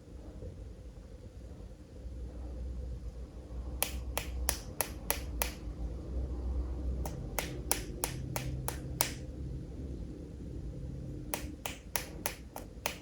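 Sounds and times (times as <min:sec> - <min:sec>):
low steady hum: 0:00.0 - 0:13.0
sharp regular taps: 0:03.8 - 0:05.7, 0:07.0 - 0:09.3, 0:11.3 - 0:13.0.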